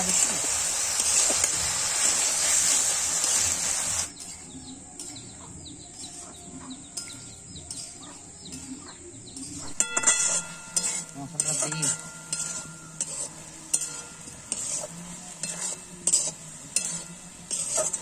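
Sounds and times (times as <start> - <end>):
food sizzling in hot oil: 0.0 - 5.2, 9.4 - 18.0
birds chirping: 1.3 - 15.4.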